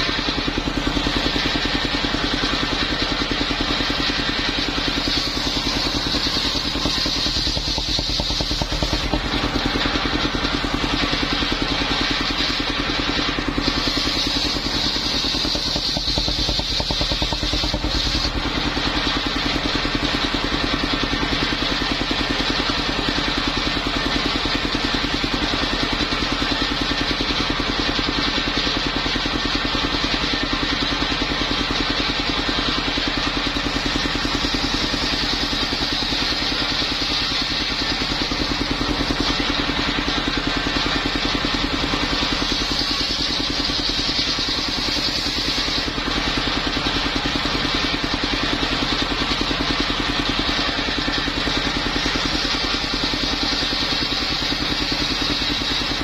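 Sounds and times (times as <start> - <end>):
high hiss of saw: 0.0 - 19.0, 33.6 - 46.9
sawmill engine running: 0.0 - 56.0.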